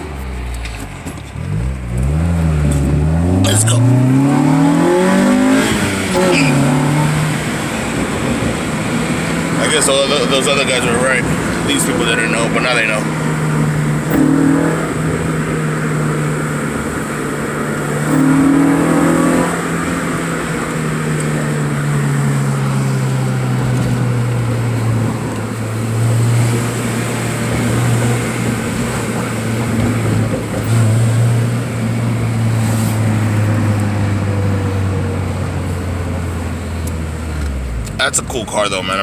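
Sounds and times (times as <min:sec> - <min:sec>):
car engine exhaust drone: 0:00.0 - 0:39.0
car engine revving: 0:00.0 - 0:39.0.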